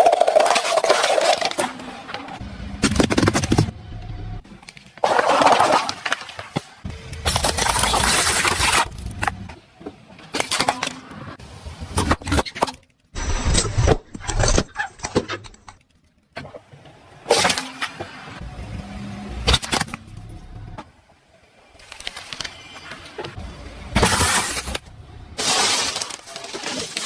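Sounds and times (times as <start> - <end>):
car engine: 2.4 - 5.5, 6.9 - 9.6, 16.6 - 21.1, 23.4 - 26.2
tyres rolling over objects: 4.4 - 11.7, 16.4 - 27.0.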